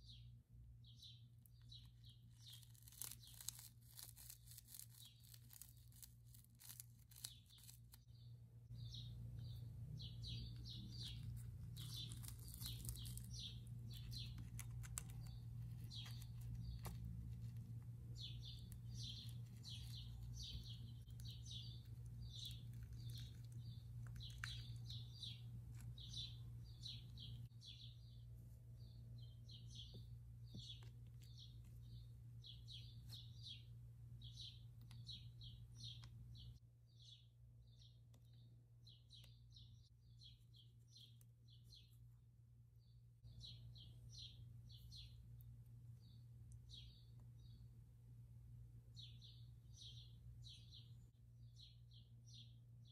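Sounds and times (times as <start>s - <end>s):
small birds chirping: 0.0s - 52.9s
plastic snack packet crinkling: 2.2s - 8.0s, 11.2s - 17.1s.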